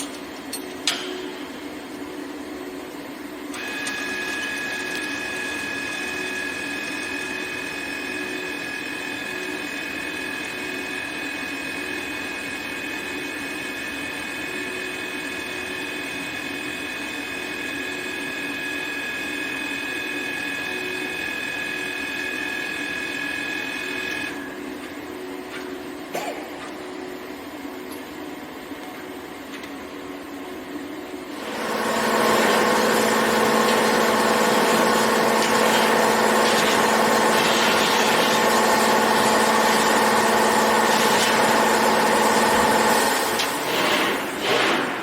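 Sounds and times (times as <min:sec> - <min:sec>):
low machine hum: 0:00.0 - 0:17.2
welding machine high whine: 0:00.0 - 0:45.0.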